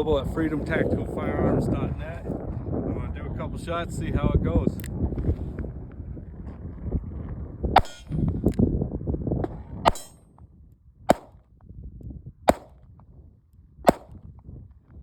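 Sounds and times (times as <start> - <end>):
wind rumble on microphone: 0.0 - 15.0
revolver shots: 7.8 - 8.1, 9.9 - 10.2, 11.1 - 11.3, 12.5 - 12.7, 13.9 - 14.2.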